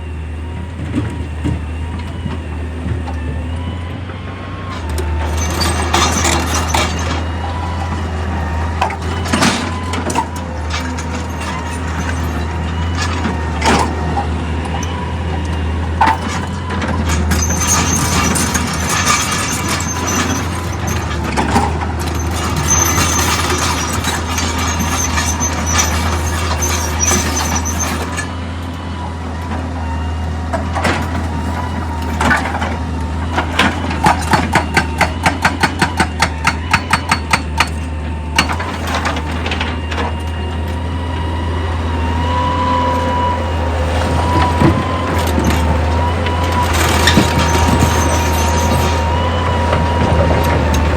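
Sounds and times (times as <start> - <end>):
excavator running: 0.0 - 50.9
high squeal: 4.7 - 29.0, 33.2 - 50.9
clanks and knocks: 8.7 - 28.4, 30.5 - 40.8, 44.0 - 50.9.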